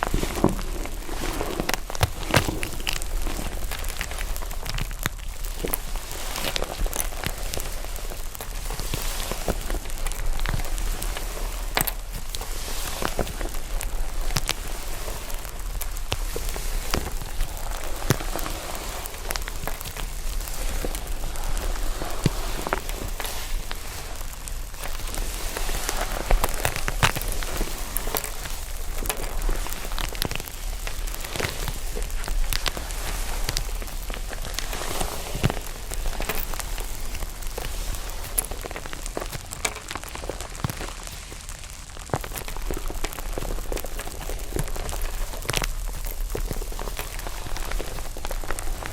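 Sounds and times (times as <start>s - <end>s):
slime cracking and popping: 0.0s - 48.9s
soft crackly hiss: 0.0s - 48.9s.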